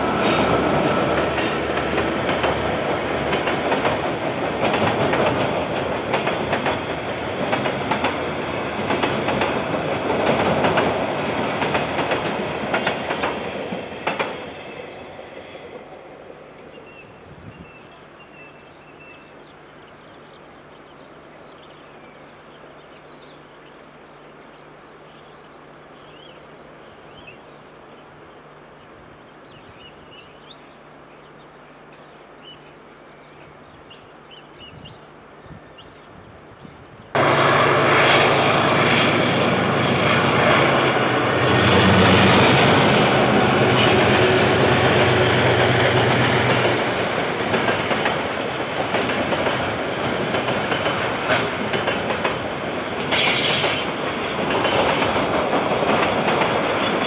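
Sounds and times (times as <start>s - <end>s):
diesel locomotive engine: 0.0s - 57.0s.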